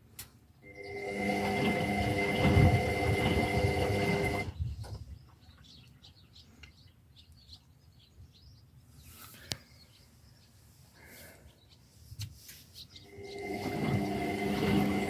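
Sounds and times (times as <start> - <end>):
washing machine rumbling: 0.7 - 4.5, 13.1 - 15.0.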